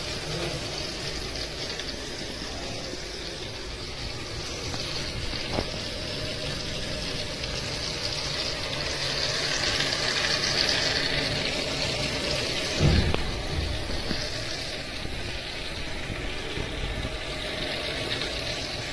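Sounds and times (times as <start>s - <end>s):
steady rain falling: 0.0s - 18.9s
low thump: 12.7s - 14.3s.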